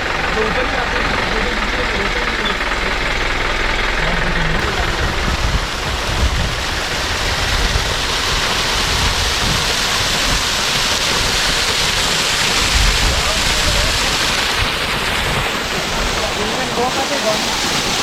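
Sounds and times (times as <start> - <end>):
car engine driving: 0.0 - 18.0
wind buffeting microphone: 4.6 - 16.3.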